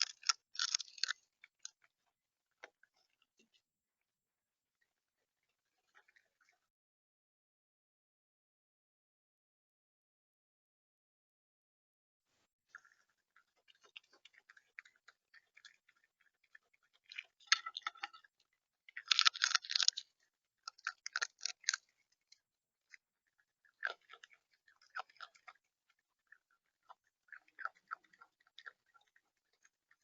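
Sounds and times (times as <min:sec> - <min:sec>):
bird pecking and cracking seed: 0:00.0 - 0:01.9, 0:13.7 - 0:25.6.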